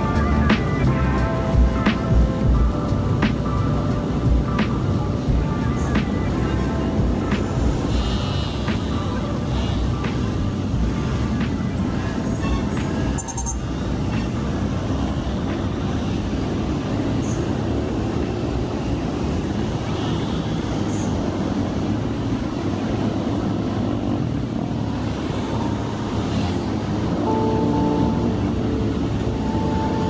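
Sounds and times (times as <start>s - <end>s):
vehicle and road noise: 0.0s - 30.0s.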